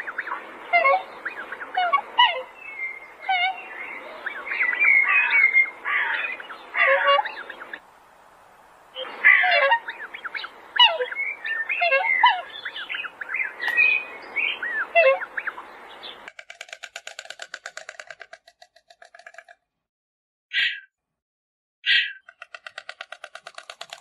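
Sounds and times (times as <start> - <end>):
birds chirping and squawking: 0.0 - 7.8, 9.0 - 19.6, 20.5 - 20.9, 21.8 - 24.0
rapid rattling bird call: 16.0 - 19.7, 21.9 - 24.0.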